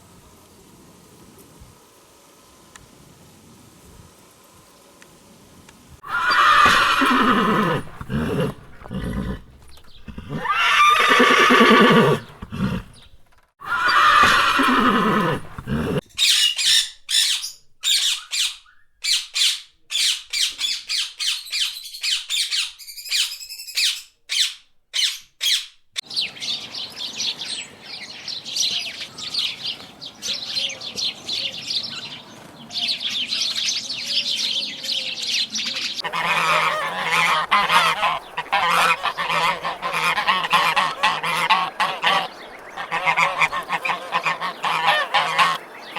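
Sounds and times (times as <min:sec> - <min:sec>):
horse whinnying: 0:06.0 - 0:16.0
parrot chirping and squawking: 0:06.0 - 0:25.7, 0:36.0 - 0:45.6.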